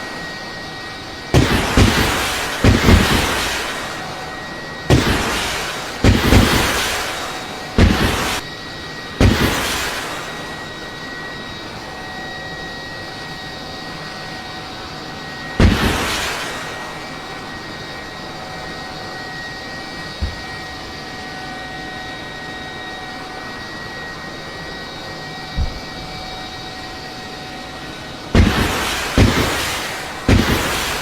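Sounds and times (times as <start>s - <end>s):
aircraft engine drone: 0.0s - 31.0s
loud explosive blasts: 1.3s - 4.1s, 4.9s - 8.4s, 9.2s - 10.4s, 15.6s - 17.0s, 28.3s - 31.0s
soft low thumps: 20.2s - 20.6s, 25.6s - 26.0s.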